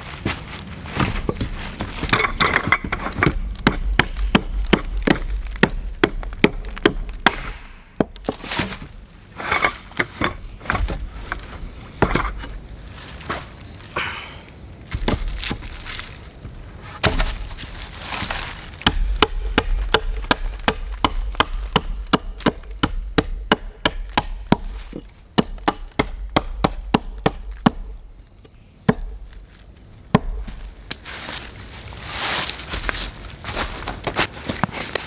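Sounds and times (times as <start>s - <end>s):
blade chopping wood: 1.0s - 11.1s, 17.0s - 17.6s, 18.8s - 27.9s.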